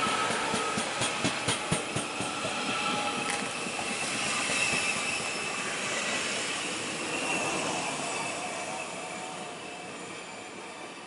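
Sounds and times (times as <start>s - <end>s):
train rolling rumble: 0.0s - 10.4s
faint high wheel squeal: 2.0s - 11.0s.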